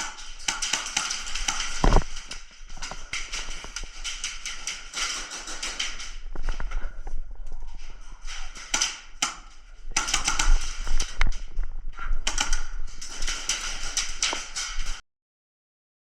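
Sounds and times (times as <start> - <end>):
airsoft guns firing: 0.0 - 6.2, 8.6 - 11.2, 12.2 - 15.0.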